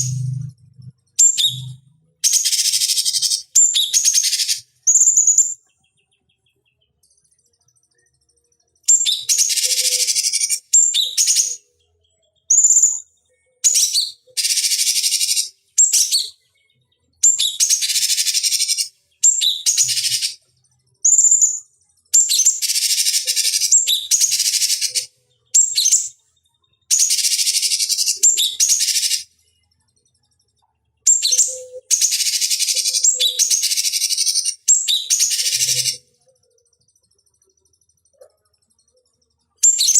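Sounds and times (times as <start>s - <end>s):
bird harsh chattering song: 0.0s - 0.5s, 1.2s - 6.5s, 8.8s - 11.7s, 12.4s - 13.0s, 13.6s - 16.4s, 17.2s - 20.4s, 22.2s - 26.2s, 26.8s - 29.4s, 31.1s - 36.1s, 39.6s - 39.9s
high whistled bird notes: 1.2s - 5.6s.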